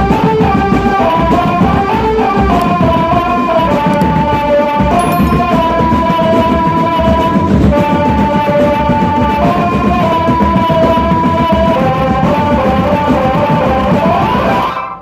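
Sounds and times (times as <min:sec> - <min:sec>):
melody of held notes: 0:05.0 - 0:06.6.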